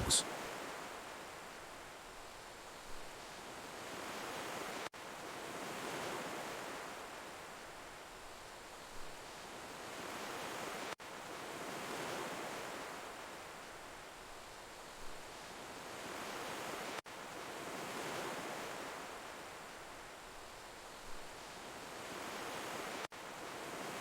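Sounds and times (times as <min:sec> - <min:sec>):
sea waves washing on shore: 0:00.0 - 0:24.0.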